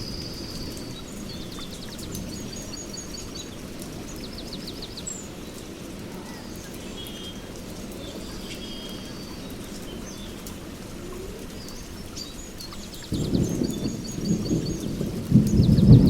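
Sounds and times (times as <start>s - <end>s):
thunder rumble: 0.0s - 4.8s, 13.1s - 16.0s
rain: 0.0s - 16.0s
songbirds chirping and trilling: 0.0s - 16.0s.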